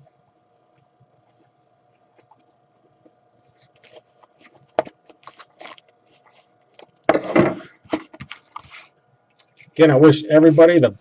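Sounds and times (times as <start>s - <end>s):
cardboard packaging rustling: 3.6s - 6.5s.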